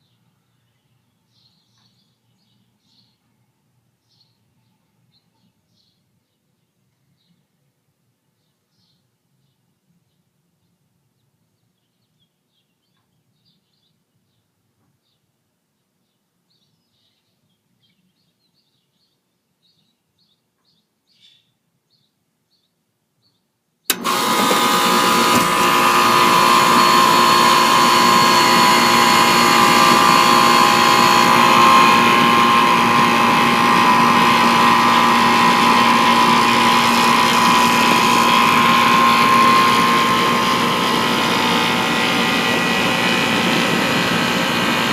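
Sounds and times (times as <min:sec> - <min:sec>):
air conditioner humming: 0:23.9 - 0:44.9.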